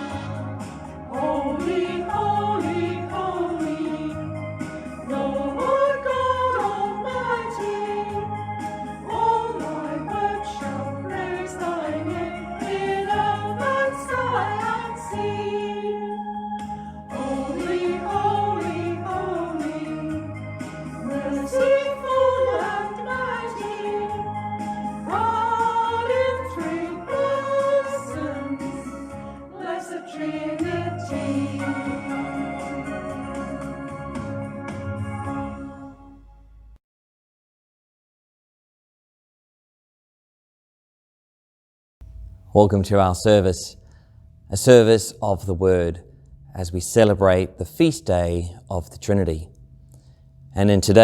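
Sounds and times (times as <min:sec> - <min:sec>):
group singing a hymn: 0:00.0 - 0:33.9.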